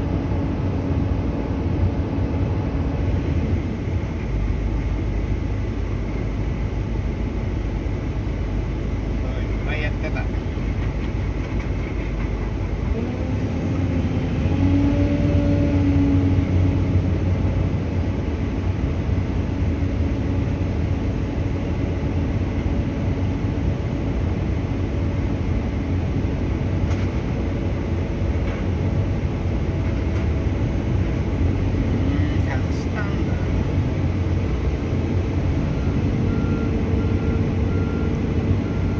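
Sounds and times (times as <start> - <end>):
diesel truck engine rumbling: 0.0 - 38.9.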